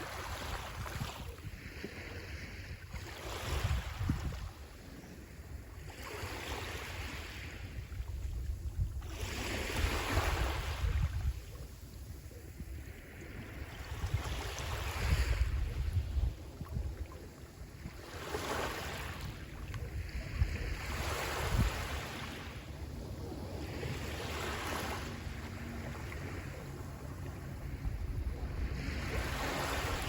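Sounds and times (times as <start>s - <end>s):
sea waves washing onto shore: 12.8s - 30.0s.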